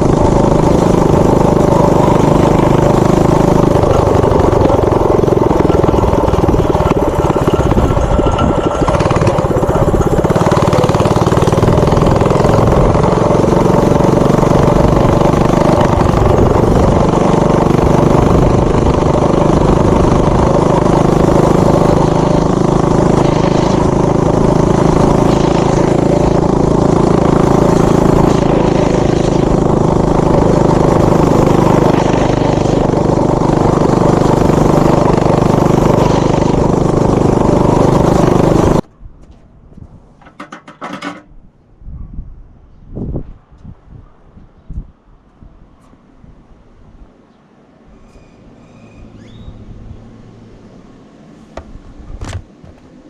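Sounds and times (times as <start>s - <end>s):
mini bike engine running: 0.0s - 38.9s.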